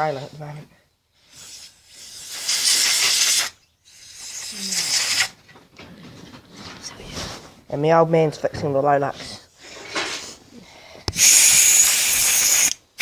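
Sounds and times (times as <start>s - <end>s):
air blow gun hissing: 1.3s - 5.4s, 11.1s - 12.8s.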